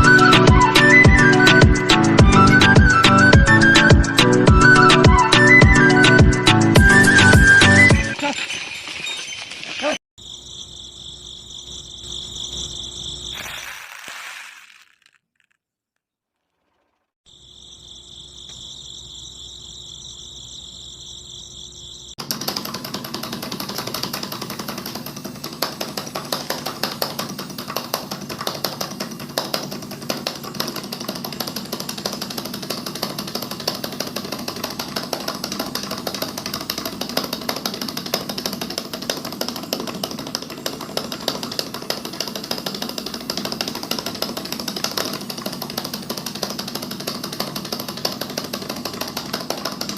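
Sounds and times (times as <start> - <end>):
flour mill rattling grind: 13.4 - 15.6, 22.2 - 49.9.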